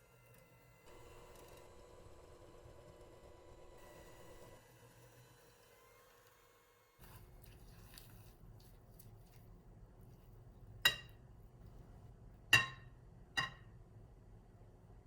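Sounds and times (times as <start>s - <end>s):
kitchenware clink: 10.9s - 11.2s, 12.5s - 13.7s.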